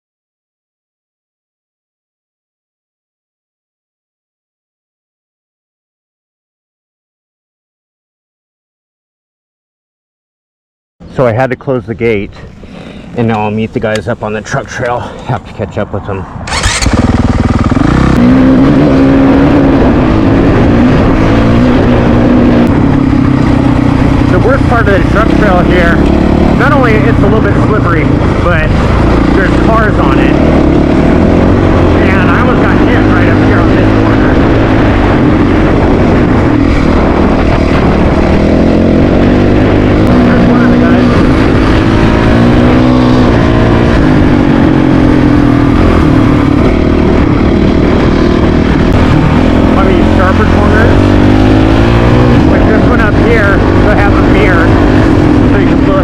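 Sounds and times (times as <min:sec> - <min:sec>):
wind rush on microphone: 0:16.2 - 0:56.0
dirt bike engine under throttle: 0:16.5 - 0:56.0.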